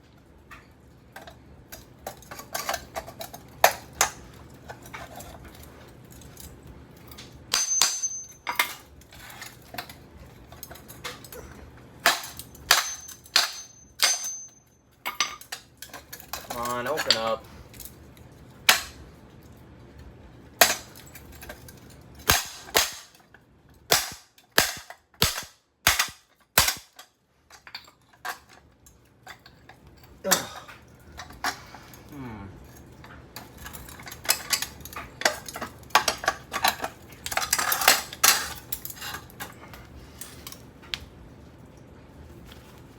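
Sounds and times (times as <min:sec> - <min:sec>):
high metallic ring: 0:07.5 - 0:08.6, 0:12.6 - 0:14.8.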